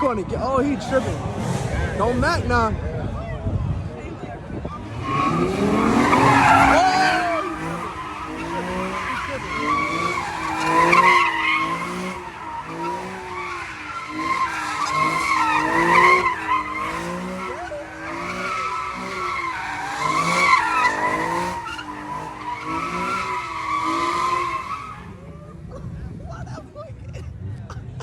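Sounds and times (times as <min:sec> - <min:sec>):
car engine revving: 0:00.0 - 0:26.4
tyres squealing: 0:04.7 - 0:25.3.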